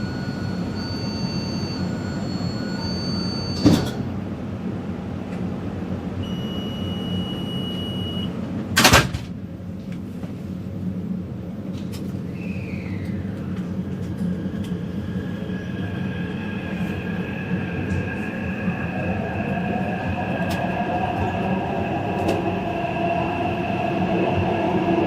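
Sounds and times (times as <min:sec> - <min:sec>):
door-closing warning beeps: 0:00.0 - 0:04.0, 0:06.2 - 0:09.1
train rumble: 0:03.6 - 0:25.0
sliding doors thudding shut: 0:08.8 - 0:09.4.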